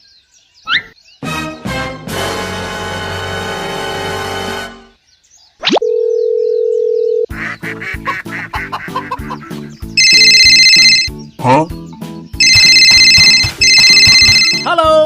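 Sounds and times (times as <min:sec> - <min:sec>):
high electronic ringing: 0:10.0 - 0:11.1, 0:12.4 - 0:14.7
steady beep tone: 0:10.0 - 0:11.1, 0:12.4 - 0:14.7.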